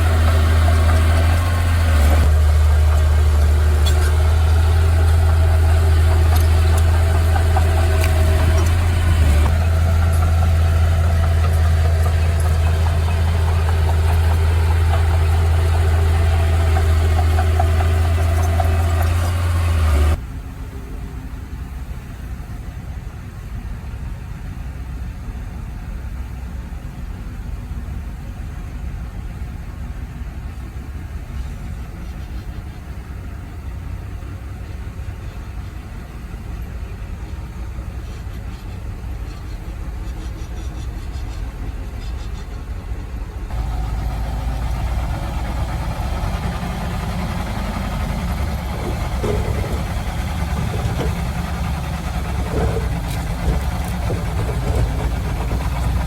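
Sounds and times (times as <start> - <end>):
heavy machinery engine running: 0.0 - 22.6, 43.5 - 56.0.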